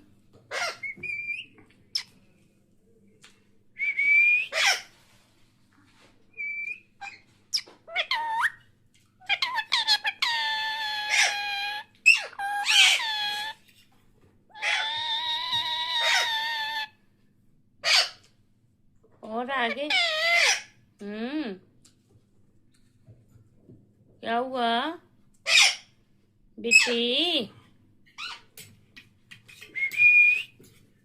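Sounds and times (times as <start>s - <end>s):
parrot whistling and calling: 0.5s - 2.1s, 6.4s - 8.6s, 9.3s - 13.6s, 14.5s - 16.9s.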